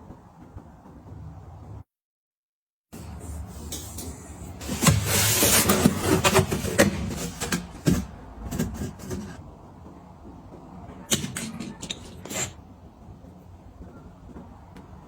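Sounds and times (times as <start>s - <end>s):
packaging crinkling and rustling: 4.6s - 9.4s
items clicking and knocking: 4.6s - 12.6s.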